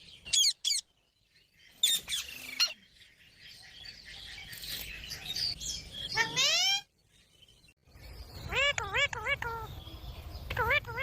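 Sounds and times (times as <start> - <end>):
parrot chirping and chattering: 0.3 - 0.9, 3.8 - 6.9, 8.3 - 11.0.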